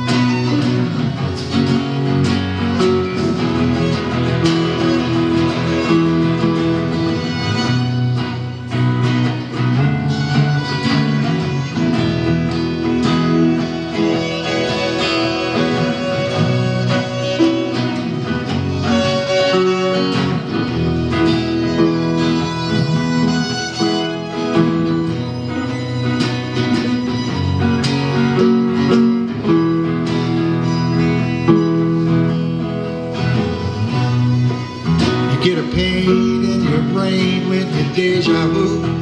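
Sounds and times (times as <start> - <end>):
guitar lead notes: 0.0 - 39.0
live band instrumental: 0.0 - 39.0.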